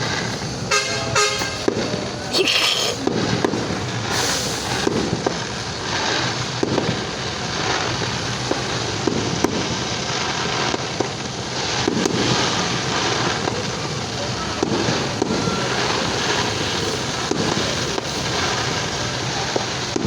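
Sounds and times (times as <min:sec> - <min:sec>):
fireworks banging and crackling: 0:00.0 - 0:20.0.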